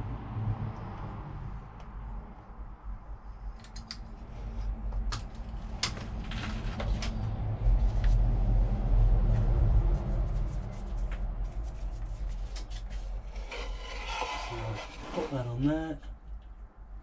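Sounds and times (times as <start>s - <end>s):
low rumble: 7.0s - 12.2s.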